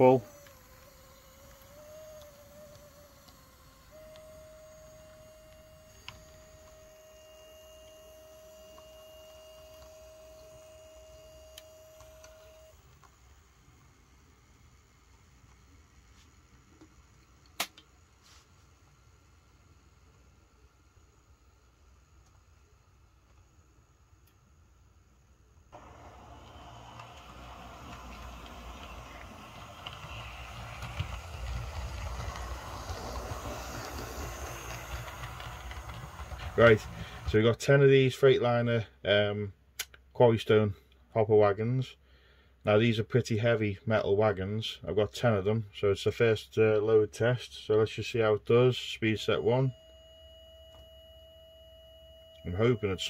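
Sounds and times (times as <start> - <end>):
model locomotive motor whine: 0.0 - 24.3, 25.3 - 37.6.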